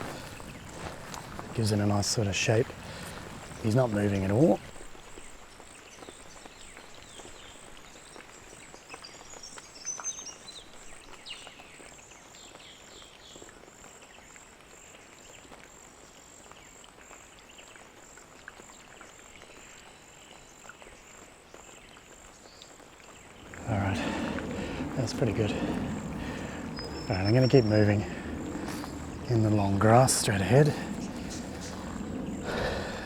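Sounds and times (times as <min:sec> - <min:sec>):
birds chirping: 0:00.0 - 0:11.8, 0:21.9 - 0:33.0
light outdoor hiss: 0:00.0 - 0:33.0
pulsing insect call: 0:23.2 - 0:33.0.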